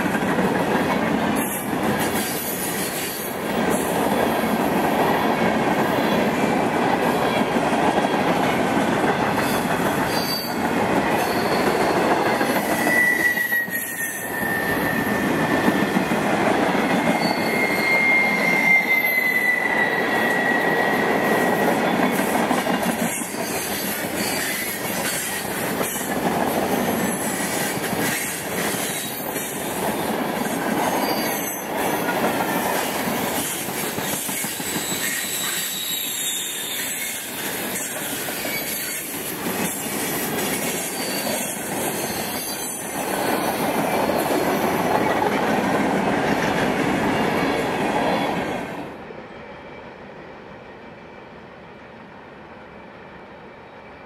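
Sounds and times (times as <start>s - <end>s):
wheel squeal: 9.4s - 10.6s, 11.2s - 16.0s, 17.0s - 22.2s, 34.1s - 39.1s, 40.8s - 43.5s.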